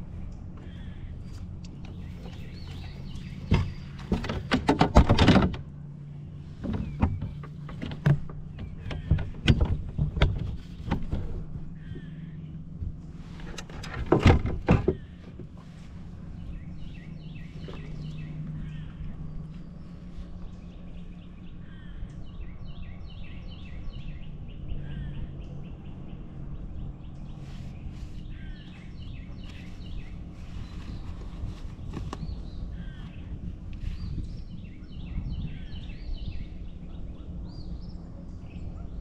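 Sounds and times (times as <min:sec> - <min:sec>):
small birds chirping: 0:00.0 - 0:04.6, 0:06.0 - 0:39.0
steady low hum: 0:00.0 - 0:39.0
clatter of loud knocks: 0:03.5 - 0:05.6.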